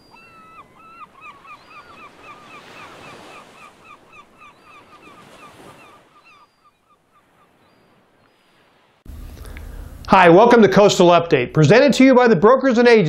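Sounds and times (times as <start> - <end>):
bird calling rapid short notes: 0.0 - 7.8.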